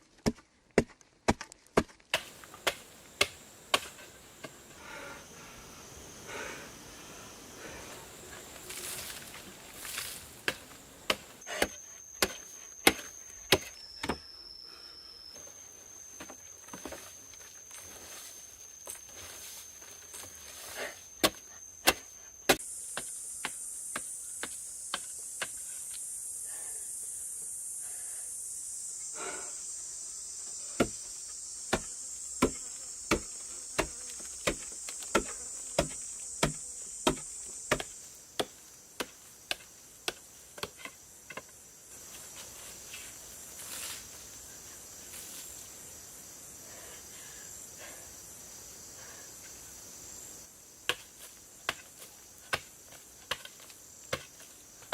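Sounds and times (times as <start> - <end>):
high insect buzz: 2.2 - 54.9
sharp tool strikes: 10.4 - 14.2, 31.7 - 40.7.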